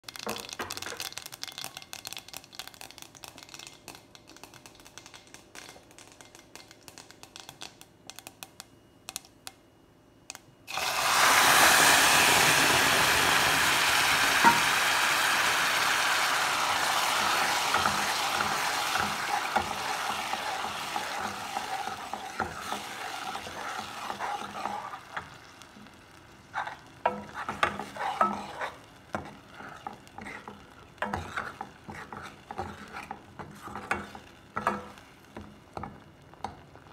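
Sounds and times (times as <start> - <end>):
spices crackling in oil: 0.0 - 8.6, 10.7 - 36.9
loud sizzle: 10.7 - 36.9
ladle scraping and clinking on pan: 27.1 - 35.0.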